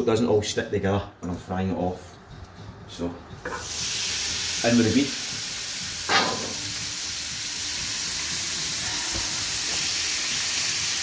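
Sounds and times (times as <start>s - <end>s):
meat sizzling in a frying pan: 3.5s - 11.0s.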